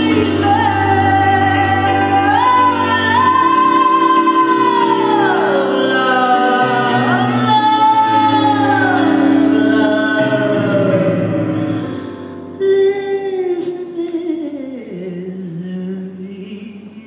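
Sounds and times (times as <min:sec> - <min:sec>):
woman singing long notes: 0:00.0 - 0:17.0.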